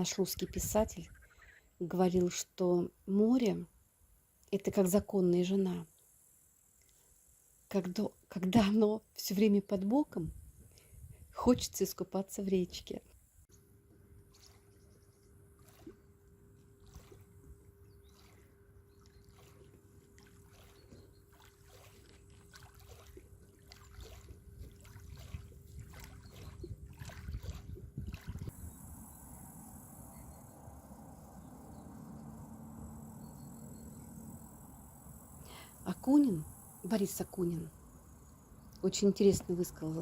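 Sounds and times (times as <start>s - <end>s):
faint steady hum: 0.0s - 27.2s, 27.8s - 40.0s
small waves lapping and splashing: 14.1s - 28.6s.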